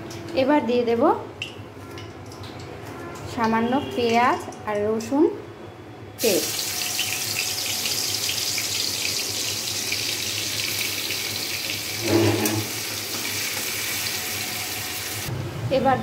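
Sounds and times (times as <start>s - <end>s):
paste sizzling in hot oil: 6.2s - 15.3s.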